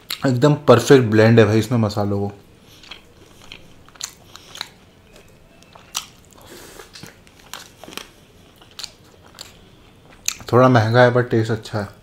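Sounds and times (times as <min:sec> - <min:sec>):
chewing and biting: 0:02.7 - 0:10.5.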